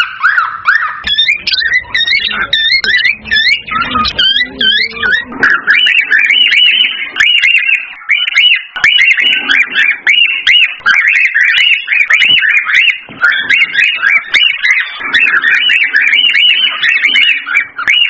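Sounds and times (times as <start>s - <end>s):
cockatiel whistled chirps: 0.0s - 18.0s.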